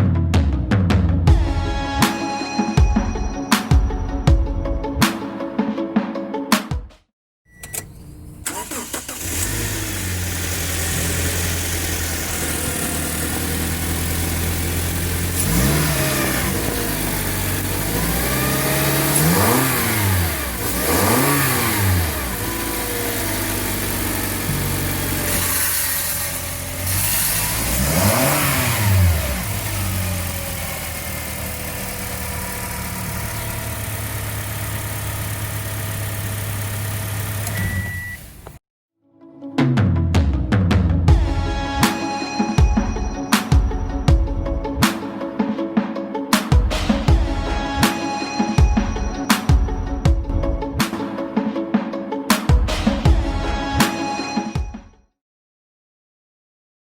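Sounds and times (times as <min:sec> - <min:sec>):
engine starting and revving: 0:07.6 - 0:38.6.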